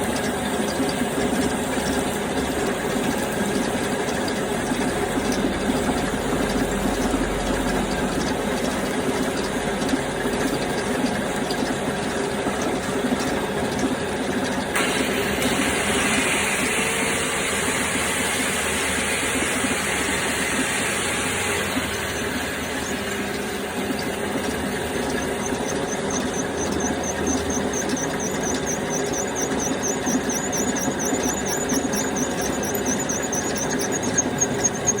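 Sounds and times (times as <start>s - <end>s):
drill press drilling with squeal: 0.0s - 35.0s
rapid high chirp: 25.0s - 35.0s.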